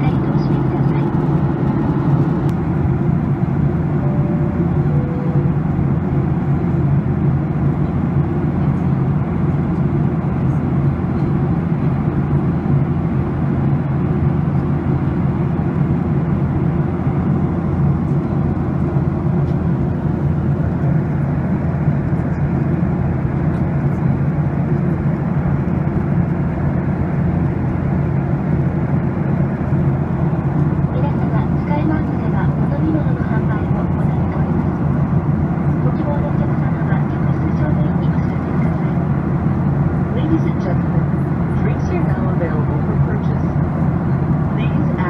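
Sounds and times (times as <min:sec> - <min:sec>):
jet cabin engine rumble: 0:00.0 - 0:45.0
faint two-note chime: 0:04.0 - 0:05.6.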